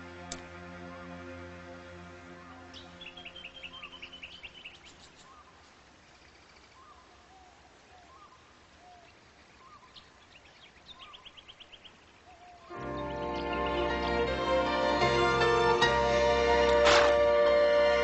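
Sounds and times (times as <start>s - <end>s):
bird trills: 2.4s - 5.6s
bird call: 2.4s - 5.7s.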